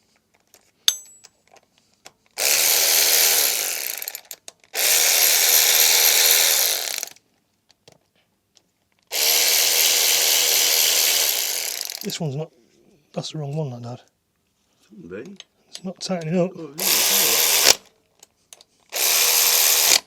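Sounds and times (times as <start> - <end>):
handheld power tool running: 2.4 - 7.2, 9.1 - 12.1, 16.8 - 17.9, 18.9 - 20.0.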